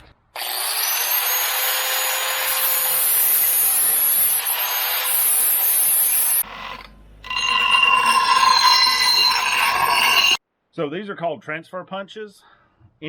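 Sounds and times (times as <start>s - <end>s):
power tool grinding steel: 0.4s - 10.4s.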